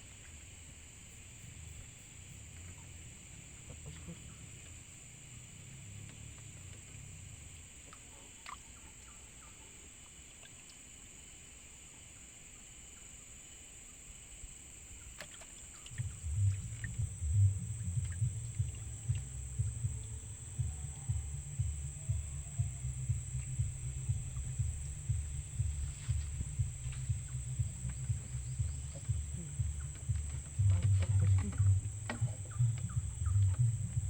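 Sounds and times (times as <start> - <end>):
low rumbling with thumps: 15.9 - 34.0
high-pitched insect drone: 16.0 - 34.0.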